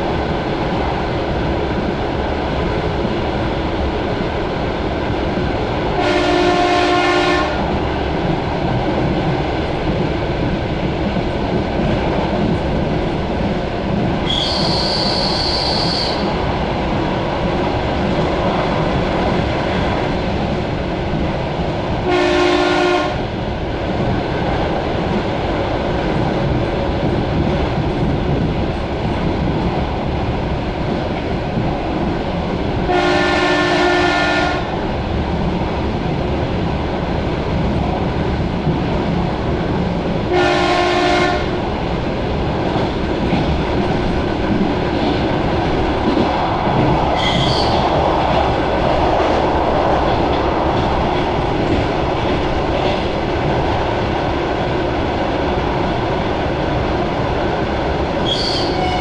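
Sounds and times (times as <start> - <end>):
train horn blasts: 6.0 - 7.6, 22.1 - 23.3, 32.9 - 34.7, 40.3 - 41.5, 58.3 - 59.0.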